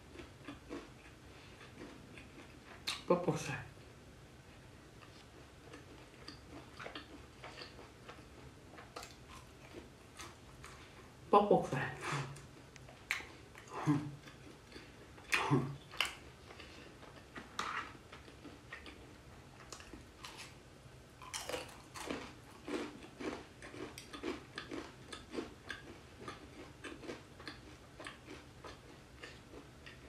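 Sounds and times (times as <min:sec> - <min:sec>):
person chewing crunchy food: 0:00.0 - 0:03.0, 0:05.0 - 0:11.2, 0:12.3 - 0:20.6, 0:21.2 - 0:30.0.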